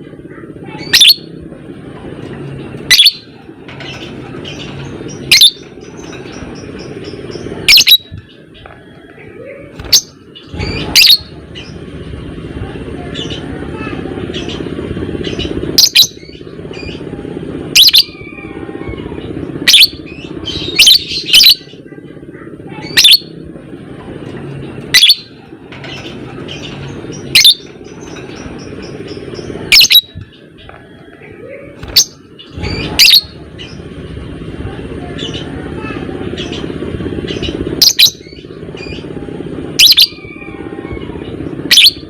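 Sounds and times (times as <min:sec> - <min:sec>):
lovebird piercing calls: 0:00.8 - 0:01.3, 0:02.9 - 0:08.7, 0:09.8 - 0:11.8, 0:15.2 - 0:17.0, 0:17.7 - 0:18.6, 0:19.6 - 0:21.7, 0:22.8 - 0:23.3, 0:24.9 - 0:25.3, 0:25.9 - 0:31.2, 0:31.8 - 0:33.8, 0:37.3 - 0:39.0, 0:39.8 - 0:40.6, 0:41.7 - 0:42.0.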